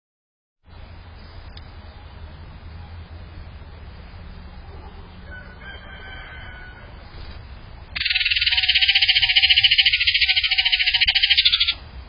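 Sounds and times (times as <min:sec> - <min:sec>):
high chirp: 0:08.0 - 0:11.8.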